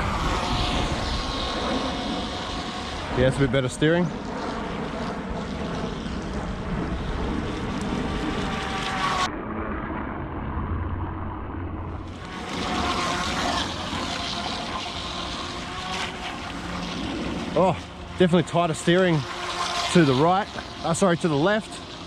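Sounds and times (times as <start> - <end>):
electric motor whine: 0.0 - 22.0.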